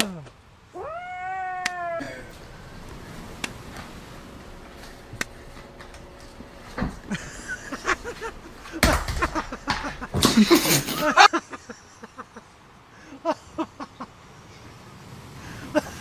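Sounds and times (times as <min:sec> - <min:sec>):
excited human voices: 0:00.0 - 0:02.6
plastic basket clattering on floor: 0:08.1 - 0:11.1.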